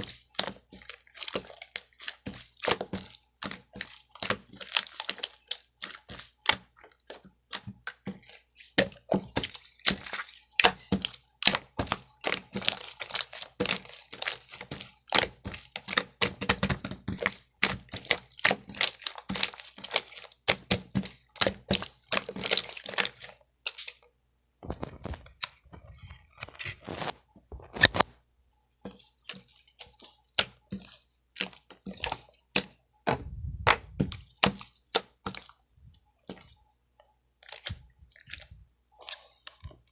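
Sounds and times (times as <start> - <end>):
crisp clicks and crunches: 24.6 - 28.2.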